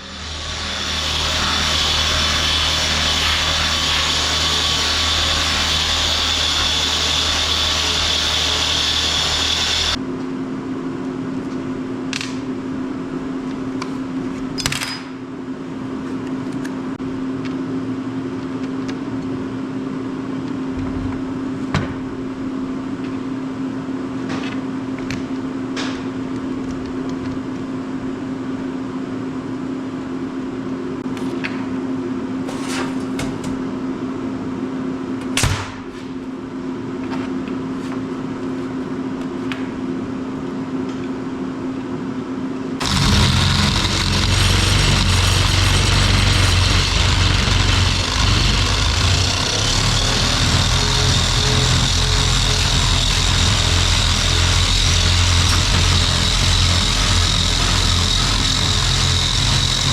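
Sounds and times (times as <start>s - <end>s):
power tool whining: 0.0s - 10.0s, 42.8s - 59.9s
steady low hum: 0.0s - 14.6s, 36.1s - 59.9s.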